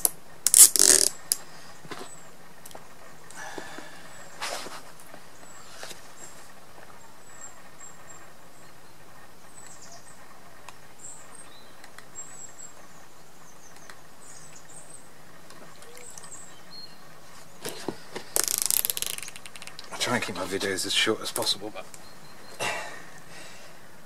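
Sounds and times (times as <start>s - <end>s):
faint outdoor background: 0.0s - 24.0s
small birds chirping: 1.1s - 24.0s
faint clicks: 13.7s - 14.7s.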